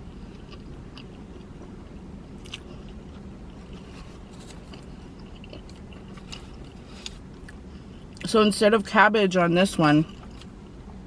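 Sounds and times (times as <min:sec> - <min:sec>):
steady low hum: 0:00.0 - 0:11.0
close-up chewing: 0:02.4 - 0:08.3.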